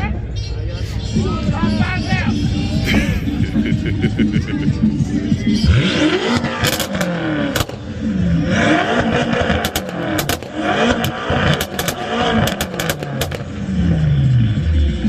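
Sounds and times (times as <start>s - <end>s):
car engine revving: 1.3s - 15.0s
exhaust cracks: 5.6s - 14.0s.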